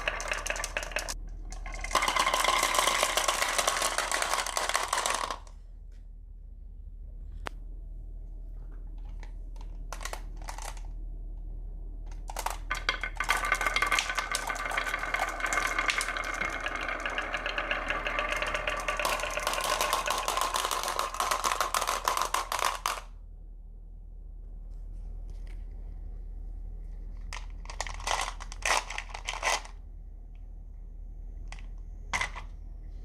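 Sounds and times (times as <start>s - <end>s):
glass marbles rattling down wood: 0.0s - 5.5s, 12.3s - 23.1s.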